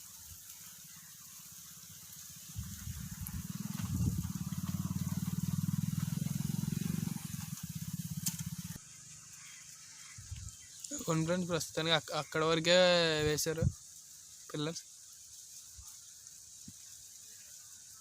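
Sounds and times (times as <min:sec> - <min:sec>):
engine rumble with firing pulse: 0:02.6 - 0:09.1.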